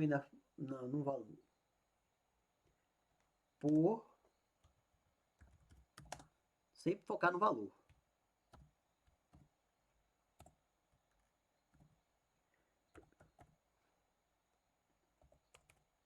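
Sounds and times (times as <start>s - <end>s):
computer keyboard keystrokes: 5.4s - 6.3s, 12.9s - 13.6s, 15.2s - 15.8s.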